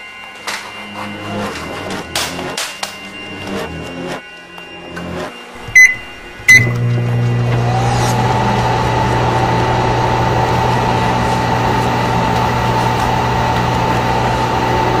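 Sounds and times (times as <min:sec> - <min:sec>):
fan whine: 0:05.5 - 0:15.0
microwave oven humming: 0:05.8 - 0:15.0.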